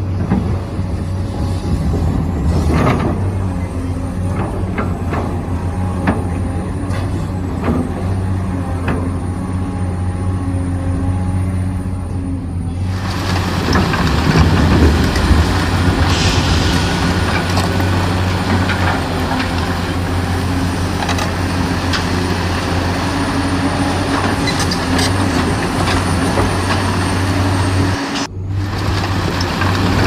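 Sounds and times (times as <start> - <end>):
model excavator hum: 0.0 - 30.0
short hiss: 16.0 - 18.1.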